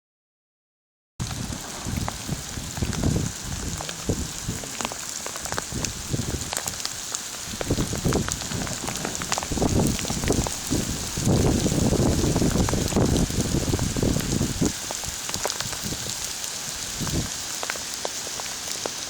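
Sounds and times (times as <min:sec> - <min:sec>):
low rumble: 0:01.2 - 0:06.6
heavy rain falling: 0:01.2 - 0:19.0.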